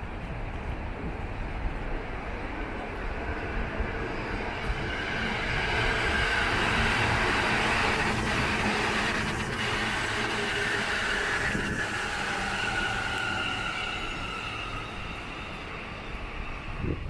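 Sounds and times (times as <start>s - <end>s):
electric train running past: 0.0s - 17.0s.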